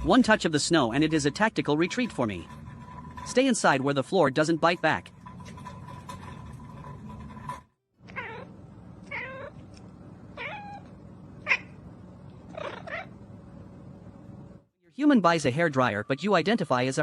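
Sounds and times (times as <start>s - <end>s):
low background hum: 0.0s - 17.0s
cat meowing: 8.1s - 8.5s, 9.1s - 9.6s, 10.4s - 10.9s.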